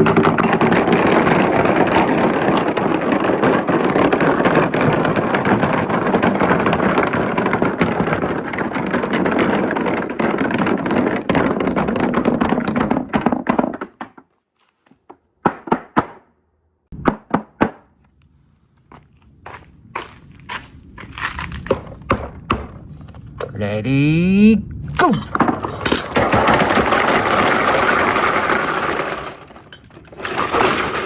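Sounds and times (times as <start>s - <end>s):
marbles rolling and clattering: 0.0s - 14.4s, 24.9s - 31.0s.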